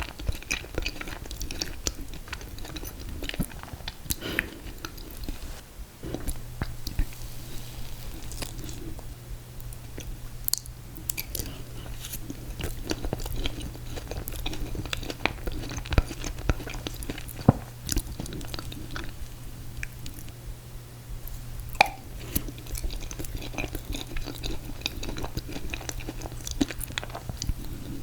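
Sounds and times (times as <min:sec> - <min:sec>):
chewing and biting ice cream cake: 0:00.0 - 0:07.2, 0:08.0 - 0:20.4, 0:21.2 - 0:28.0
steady low hum: 0:00.0 - 0:28.0
wet mouth clicks and smacks: 0:21.8 - 0:22.0.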